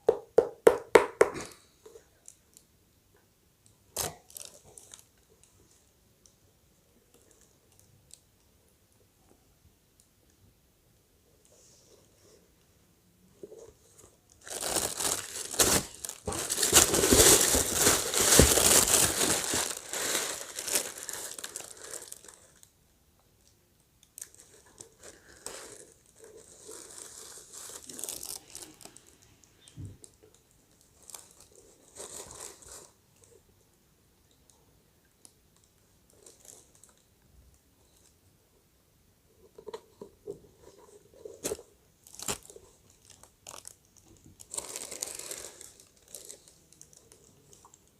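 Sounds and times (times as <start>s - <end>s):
packaging crinkling and tearing: 4.0s - 5.1s, 14.4s - 22.7s, 24.2s - 29.2s, 41.4s - 47.8s
rustling and handling: 13.3s - 22.7s, 24.2s - 33.4s, 39.4s - 47.9s.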